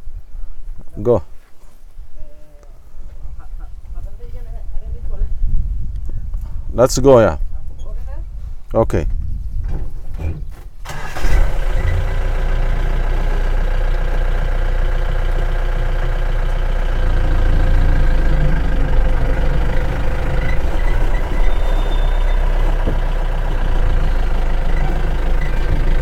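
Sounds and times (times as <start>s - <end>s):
vehicle engine pulling away: 10.8s - 26.0s.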